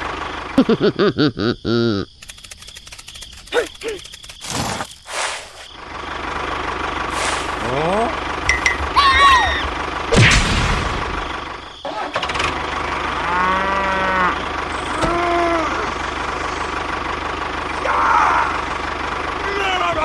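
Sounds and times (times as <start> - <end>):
low engine hum: 0.0 - 1.2, 5.7 - 20.0
cow mooing: 13.1 - 15.9.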